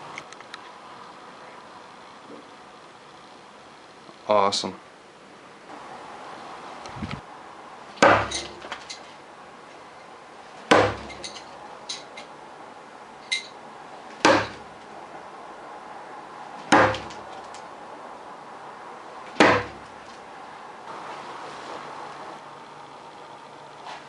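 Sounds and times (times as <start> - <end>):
metal spikes striking a target: 8.0 - 9.0, 10.7 - 12.1, 14.2 - 14.7, 16.7 - 17.3, 19.4 - 19.9.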